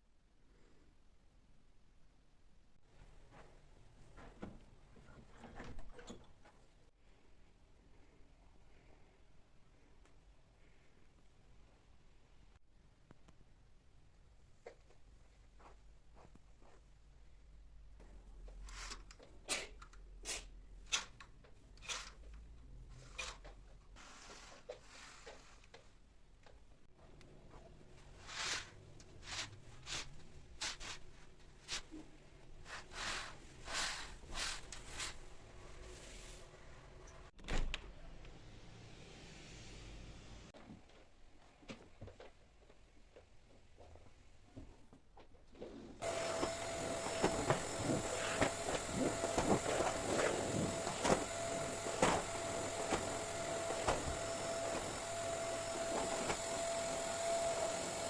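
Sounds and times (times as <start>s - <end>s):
small motor humming with whine: 46.0s - 58.0s.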